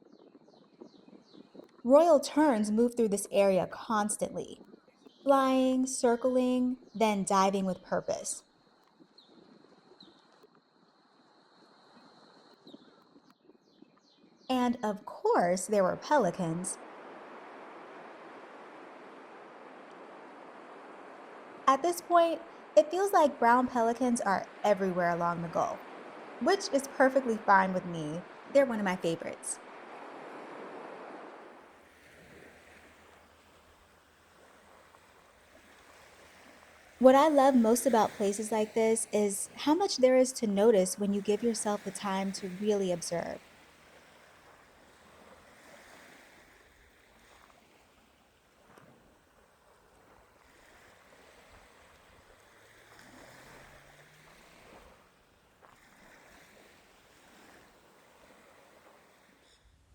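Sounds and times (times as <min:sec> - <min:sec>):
faint surf: 0:00.0 - 0:13.3, 0:14.4 - 0:59.9
faint ocean waves on shore: 0:00.0 - 0:13.4, 0:14.4 - 0:59.9
low wind rumble: 0:15.7 - 0:46.9.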